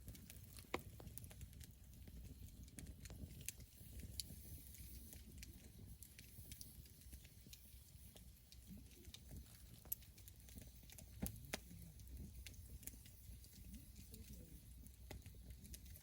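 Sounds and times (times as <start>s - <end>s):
campfire wood crackling: 0.0s - 16.0s.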